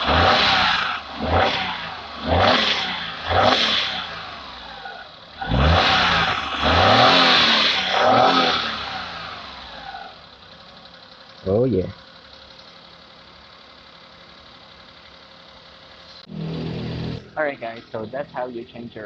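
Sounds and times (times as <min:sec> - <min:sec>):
car engine revving: 0:00.0 - 0:11.6, 0:15.3 - 0:18.9.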